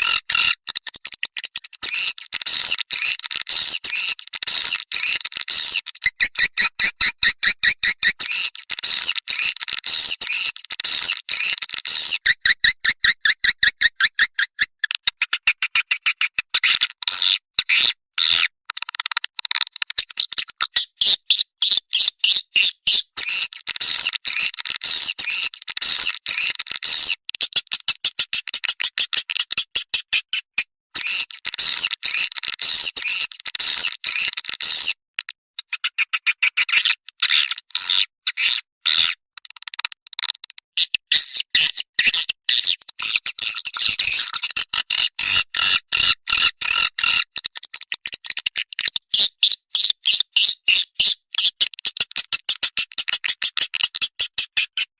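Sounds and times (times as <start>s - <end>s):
recorded swiftlet twittering: 1.8s - 12.3s.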